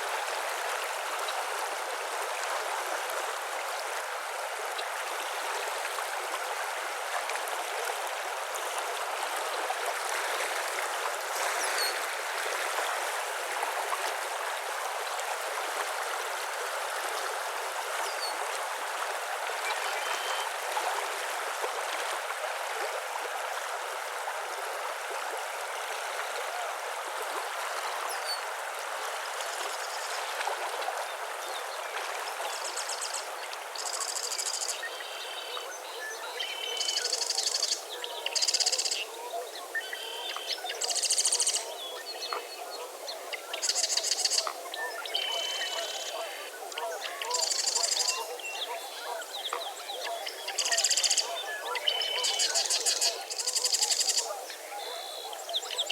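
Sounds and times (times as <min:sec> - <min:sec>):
stream water rushing: 0:00.0 - 0:36.8.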